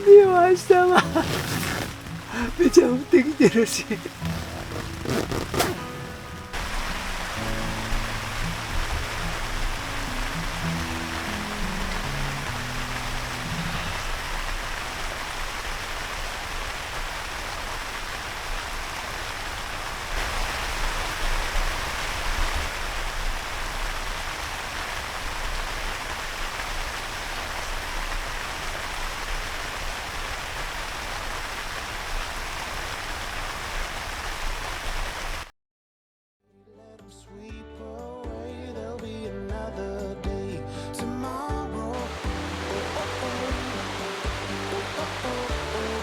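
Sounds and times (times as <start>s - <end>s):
heavy rain falling: 0.0s - 35.5s, 42.0s - 46.0s.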